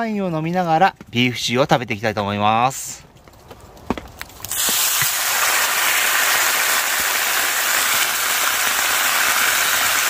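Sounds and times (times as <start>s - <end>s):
rain falling on a roof: 4.4s - 10.0s.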